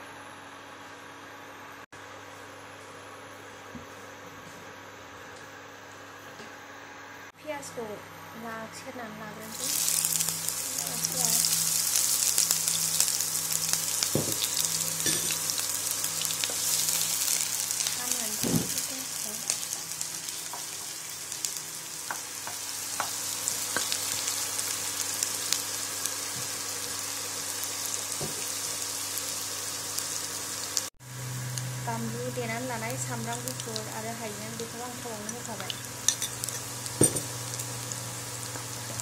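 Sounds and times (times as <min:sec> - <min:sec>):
onion sizzling in hot oil: 0:09.4 - 0:39.0.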